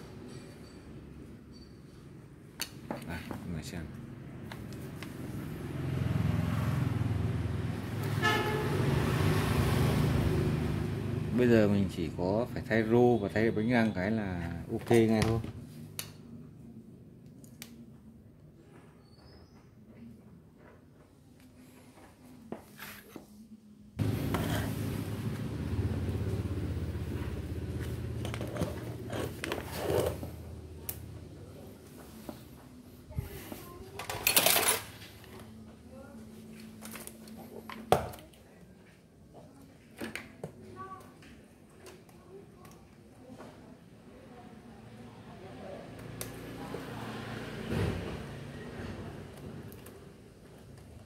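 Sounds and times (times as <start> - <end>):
short horn toot: 8.1 - 9.0
vehicle engine rumbling: 24.0 - 31.3.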